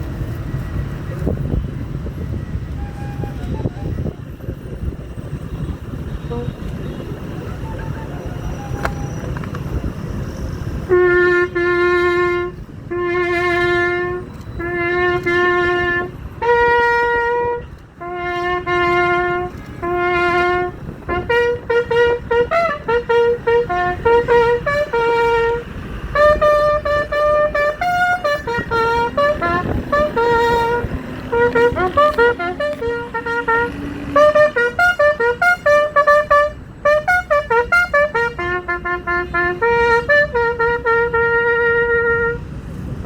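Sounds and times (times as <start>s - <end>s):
brass horn playing bugle call: 6.2s - 6.6s, 10.9s - 42.6s.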